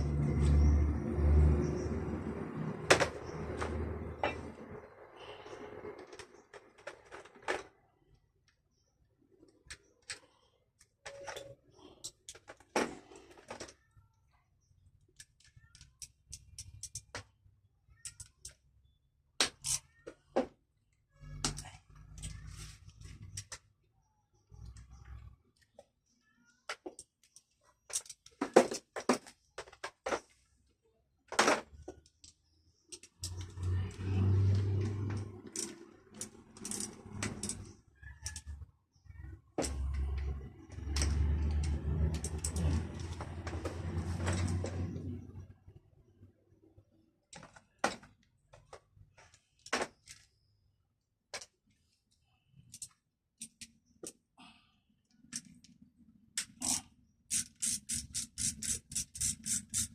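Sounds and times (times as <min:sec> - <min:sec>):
tools clicking and knocking: 0:15.2 - 0:17.3, 0:19.4 - 0:20.2, 0:26.6 - 0:30.3, 0:31.4 - 0:33.6, 0:34.8 - 0:38.6, 0:39.6 - 0:44.9, 0:52.7 - 0:54.2, 0:56.4 - 0:59.9.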